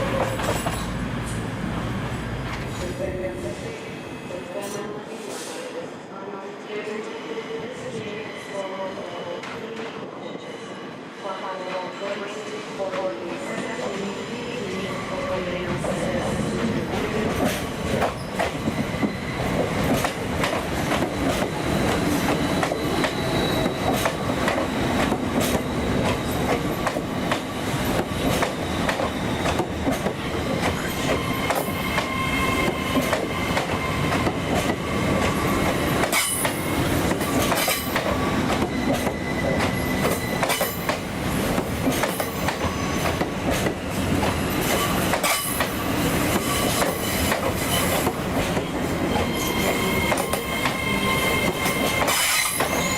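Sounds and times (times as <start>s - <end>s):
high wheel squeal: 22.4s - 24.0s, 30.8s - 34.3s, 38.3s - 40.8s, 49.1s - 52.9s.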